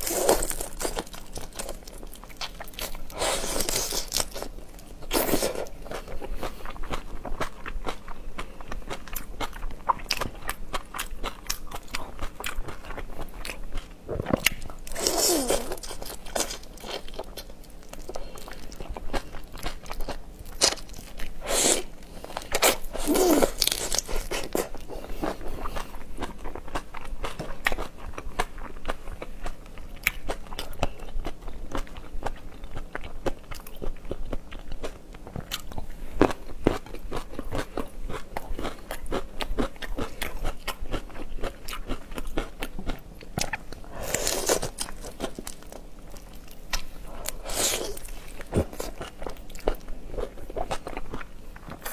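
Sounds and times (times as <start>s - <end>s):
person crunching and chewing food: 0.0s - 51.9s.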